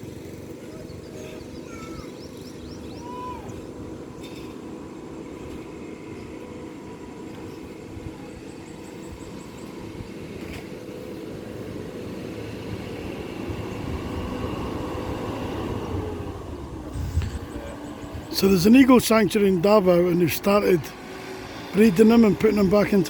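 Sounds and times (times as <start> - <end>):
low steady rumble with hum: 12.7 - 20.9.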